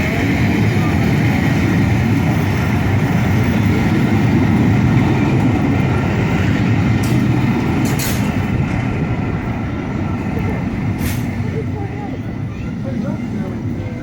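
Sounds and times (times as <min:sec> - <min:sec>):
steam train rumbling past: 0:00.0 - 0:14.0.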